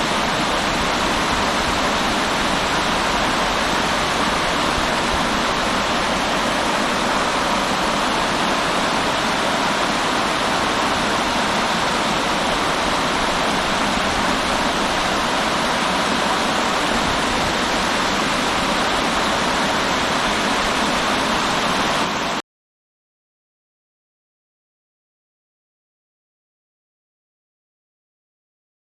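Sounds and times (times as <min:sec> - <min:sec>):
river water rushing: 0:00.0 - 0:22.4.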